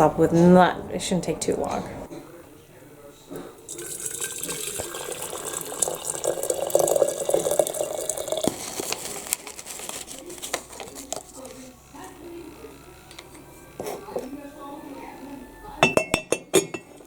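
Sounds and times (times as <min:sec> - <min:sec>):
tap running into sink: 0:03.7 - 0:08.8.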